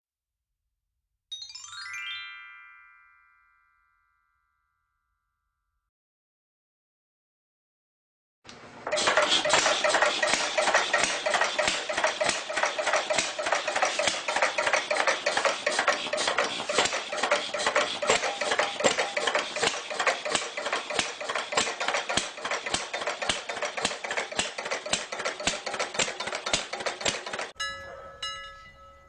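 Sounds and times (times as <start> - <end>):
toy train motor clicking rattle: 8.8 - 27.6.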